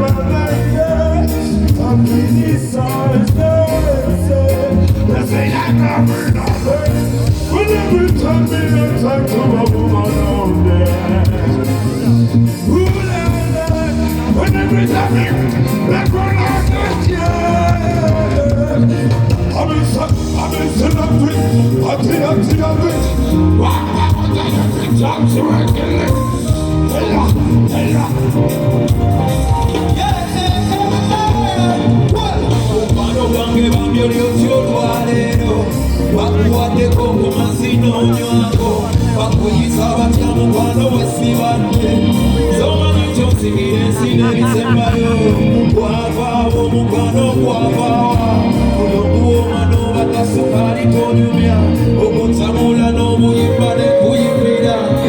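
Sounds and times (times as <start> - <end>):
live band playing: 0.0 - 55.0
person singing: 0.0 - 55.0
wavering lead vocal: 0.0 - 55.0.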